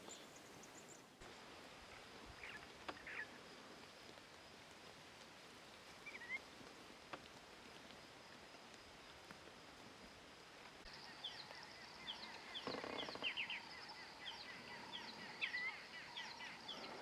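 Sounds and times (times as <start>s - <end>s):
faint clicks: 2.4s - 9.6s
faint bird chirps: 6.0s - 6.4s, 10.9s - 17.0s.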